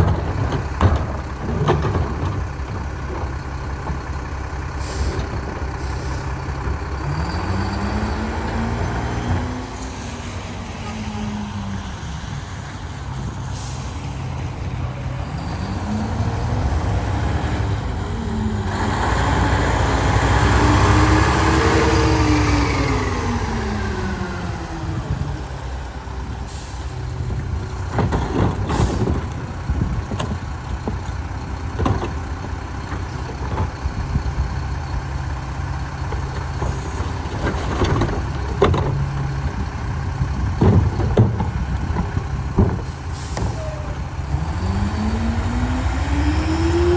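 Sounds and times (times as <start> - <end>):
metallic clanks and knocks: 0.0 - 4.4, 27.3 - 34.6, 36.1 - 43.8
diesel engine revving: 0.0 - 46.9
air brake hisses: 4.8 - 6.3, 13.5 - 14.2, 26.5 - 27.1, 42.9 - 43.9.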